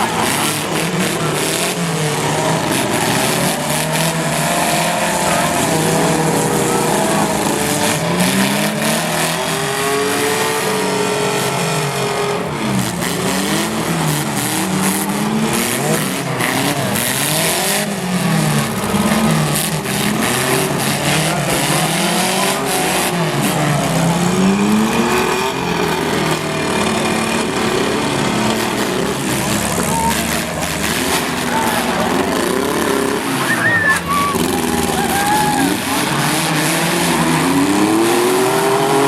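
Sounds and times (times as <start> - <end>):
racing car engines revving: 0.0 - 39.0
tyre squeal: 29.8 - 30.4, 33.4 - 36.0.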